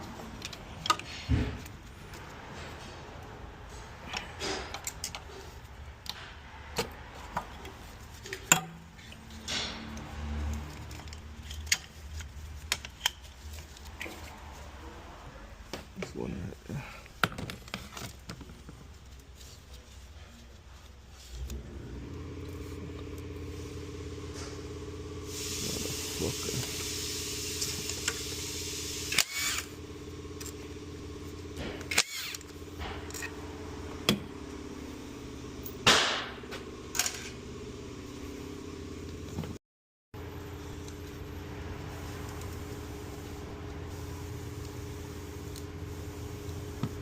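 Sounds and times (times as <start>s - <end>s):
car engine starting and idling: 21.3s - 39.6s, 40.2s - 47.0s.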